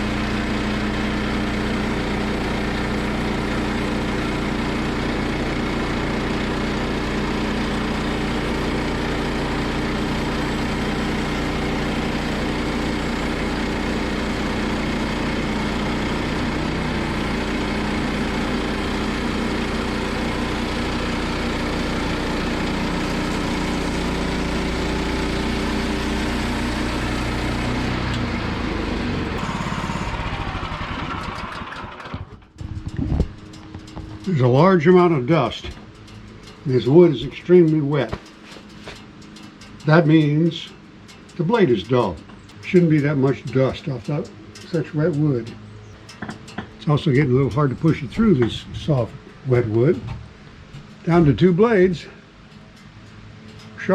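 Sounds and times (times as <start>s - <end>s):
saw blade cutting log: 0.0s - 28.4s, 41.3s - 50.1s
gasoline engine running: 0.0s - 53.9s.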